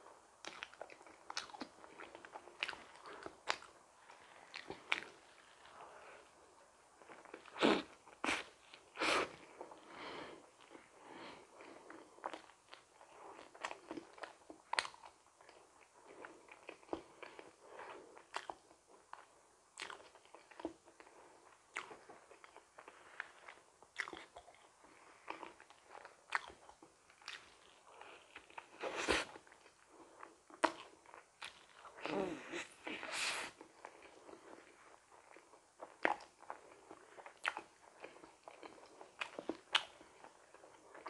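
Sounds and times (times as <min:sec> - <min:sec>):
chewing with wet mouth clicks: 0:00.4 - 0:05.7, 0:11.9 - 0:17.6, 0:18.2 - 0:21.1, 0:21.7 - 0:28.8, 0:29.4 - 0:31.9, 0:35.1 - 0:41.0.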